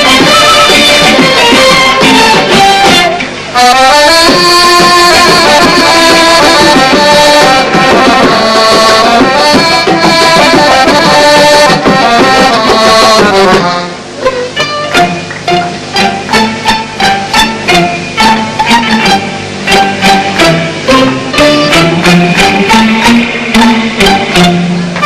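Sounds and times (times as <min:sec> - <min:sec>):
ensemble melody in unison: 0:00.0 - 0:25.0
hand-drum percussion: 0:00.0 - 0:25.0.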